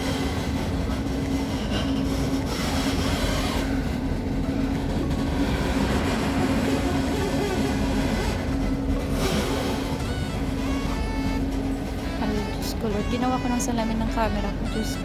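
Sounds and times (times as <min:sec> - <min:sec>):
tram motor hum: 0:00.0 - 0:15.0
tram rumbling: 0:00.0 - 0:15.0.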